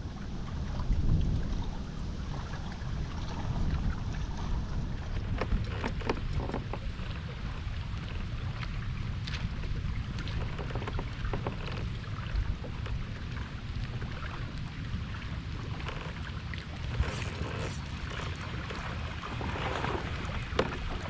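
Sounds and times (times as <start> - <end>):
wind buffeting microphone: 0.0 - 13.3
clicks and knocks from boat: 1.4 - 21.0.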